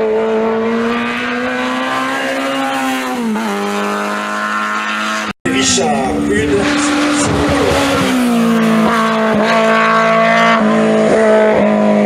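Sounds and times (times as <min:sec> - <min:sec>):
rally car engine revving hard: 0:00.0 - 0:12.0.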